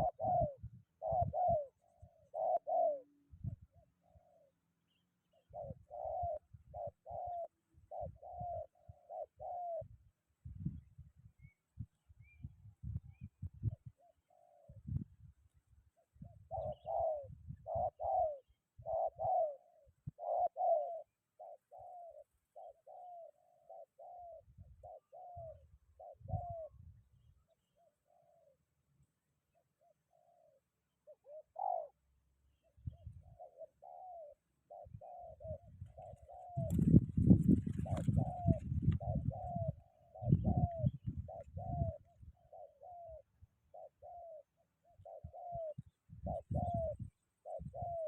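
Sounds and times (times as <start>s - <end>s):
doves cooing: 0.0s - 4.6s, 5.3s - 9.9s, 13.7s - 15.0s, 16.2s - 26.8s, 27.8s - 28.7s, 29.6s - 32.1s, 32.9s - 48.0s
wind buffeting microphone: 10.4s - 13.9s, 34.9s - 42.3s, 45.7s - 47.8s.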